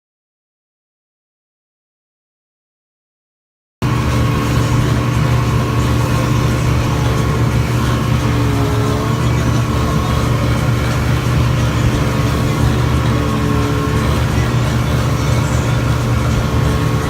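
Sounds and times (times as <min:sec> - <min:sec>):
boat engine humming: 0:03.8 - 0:17.0.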